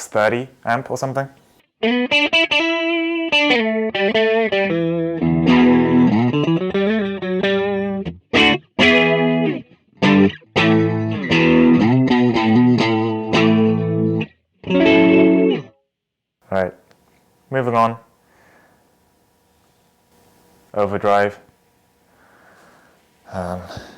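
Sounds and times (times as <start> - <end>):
clean electric guitar: 1.8 - 15.7.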